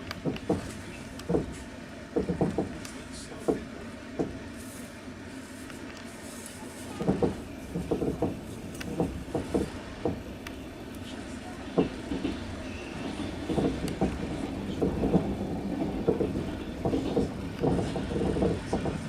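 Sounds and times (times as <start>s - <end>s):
train low rumble: 0.0s - 19.0s
wheels knocking over rails: 0.2s - 2.8s, 7.0s - 10.3s, 11.7s - 19.0s.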